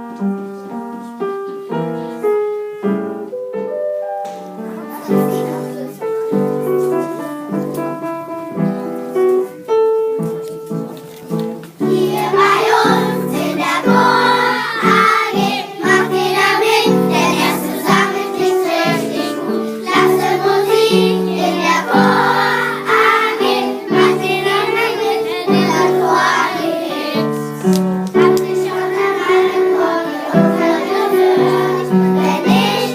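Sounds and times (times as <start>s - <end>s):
children singing as a choir: 11.8s - 32.9s.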